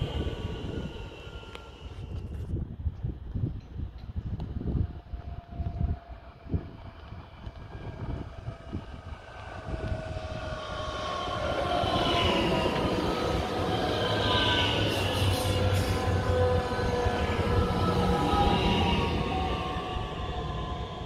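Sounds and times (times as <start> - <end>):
electric train drive whine: 0.0 - 2.8, 4.4 - 21.0
train wheels on rail: 0.0 - 21.0.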